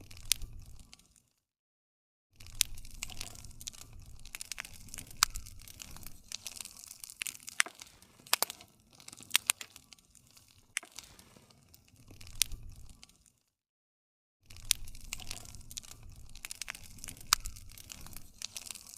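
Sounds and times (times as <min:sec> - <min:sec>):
wood campfire crackling: 0:00.0 - 0:01.3, 0:02.4 - 0:13.4, 0:14.5 - 0:18.9.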